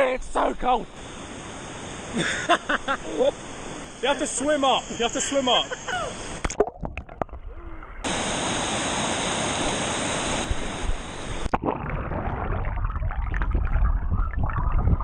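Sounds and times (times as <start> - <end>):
muffled water splashing: 6.0 - 15.0.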